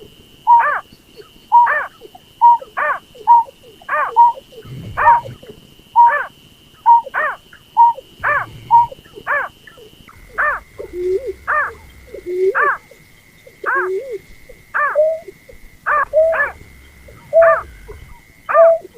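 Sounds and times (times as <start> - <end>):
thin steady whine: 0.0 - 18.9
snipe lure calls: 6.0 - 18.9.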